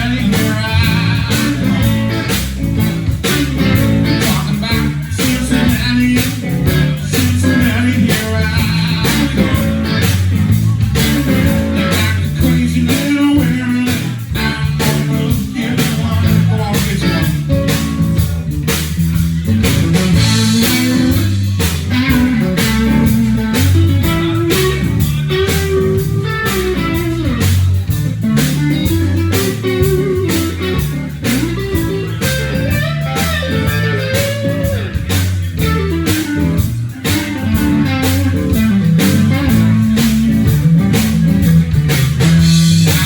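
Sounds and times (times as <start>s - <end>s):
bass guitar: 0.0s - 43.0s
electric guitar lead line: 0.0s - 43.0s
steady drum beat: 0.0s - 43.0s.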